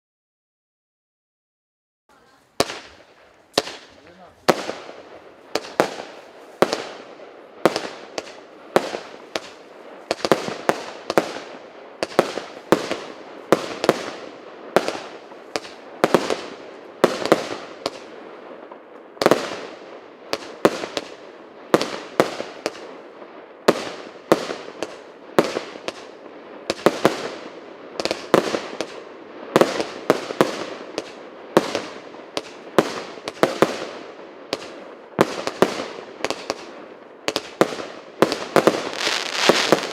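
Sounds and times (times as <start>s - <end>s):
firework battery firing: 2.1s - 18.2s, 23.6s - 39.9s.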